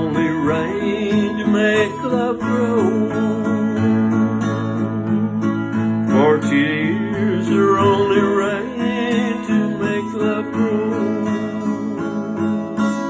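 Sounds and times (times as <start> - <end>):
acoustic guitar strumming: 0.0 - 13.0
country waltz music: 0.0 - 13.0.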